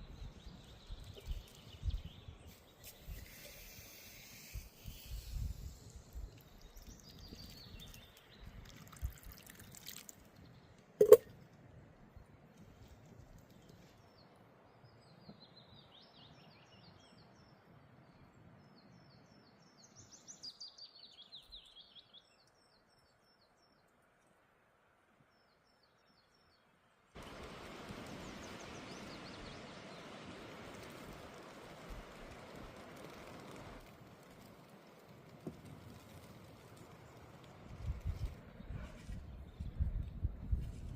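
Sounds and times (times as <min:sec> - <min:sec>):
small birds chirping trills: 0:00.0 - 0:10.8
steady hiss: 0:02.5 - 0:07.1, 0:27.2 - 0:37.8.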